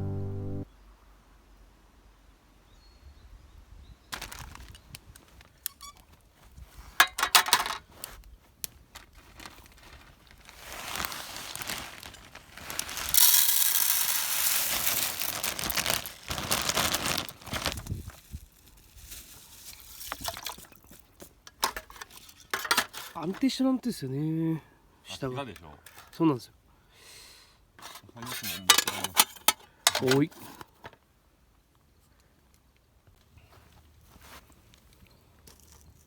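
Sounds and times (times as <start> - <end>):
rustling: 4.2 - 20.7.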